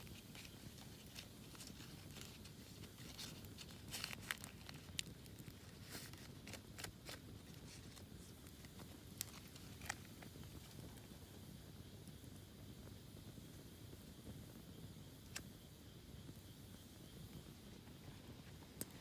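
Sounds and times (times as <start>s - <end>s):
campfire crackling: 0.0s - 12.9s.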